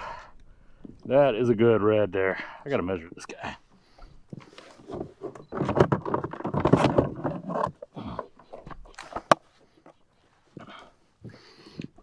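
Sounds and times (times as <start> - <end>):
knocking and rattling on plastic kayak: 4.4 - 9.4.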